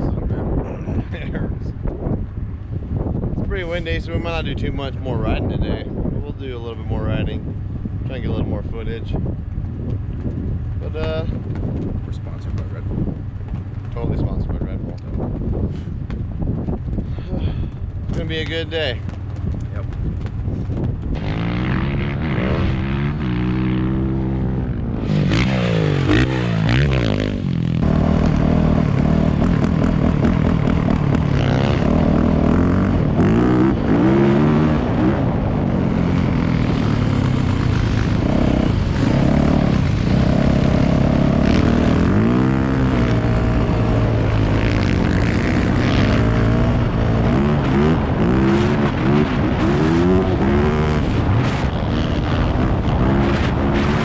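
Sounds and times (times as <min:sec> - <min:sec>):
off-road engines revving: 0:21.2 - 0:54.0.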